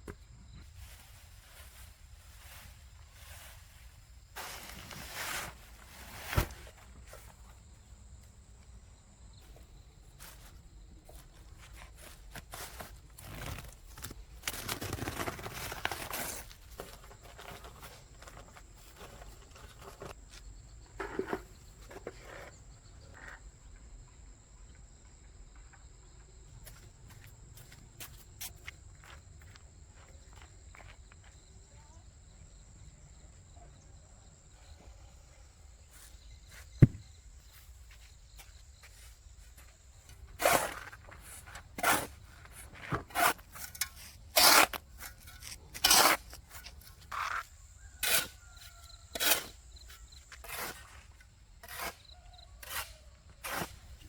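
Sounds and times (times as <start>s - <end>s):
rustling: 0.6s - 7.4s.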